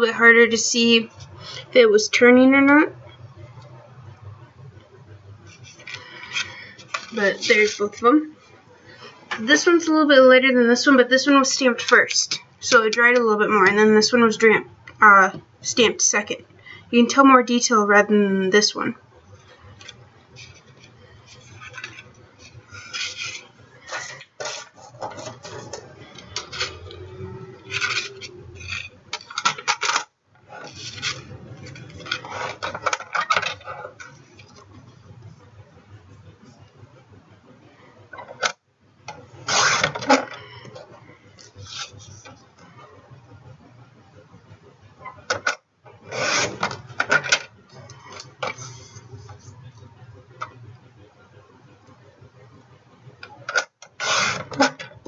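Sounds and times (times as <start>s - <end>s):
paper rustling and rubbing: 20.3s - 26.8s, 30.5s - 33.3s.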